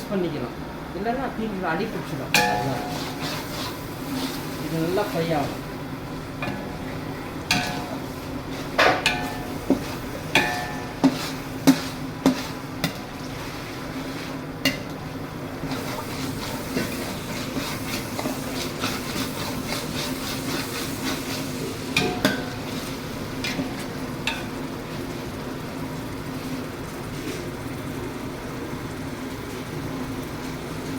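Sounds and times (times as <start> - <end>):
frying sizzle: 0.0 - 30.9
metal ladle clanking against pot: 2.3 - 3.4, 6.4 - 8.0, 8.8 - 13.0, 22.0 - 24.6.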